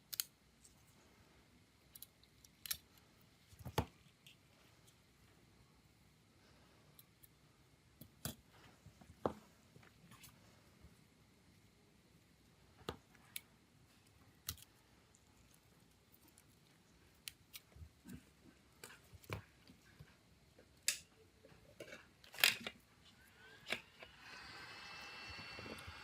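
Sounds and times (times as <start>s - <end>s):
faint high whine: 22.6s - 26.0s
steady hiss: 22.9s - 26.0s.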